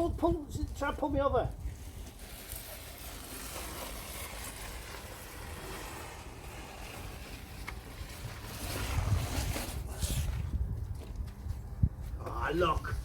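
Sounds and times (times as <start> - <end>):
wind rumble on microphone: 0.0 - 2.4, 3.9 - 13.0
plastic strip dragged across wet concrete: 1.6 - 10.6.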